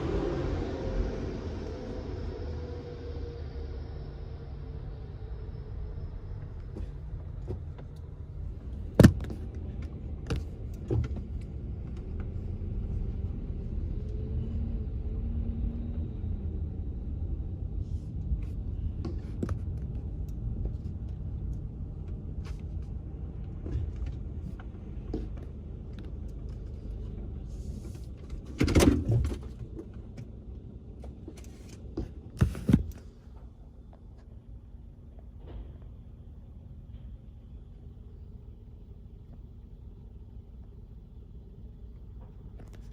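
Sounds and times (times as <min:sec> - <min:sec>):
car cabin rumble: 0:06.2 - 0:13.8
sharp knocks and clunks: 0:08.9 - 0:09.5.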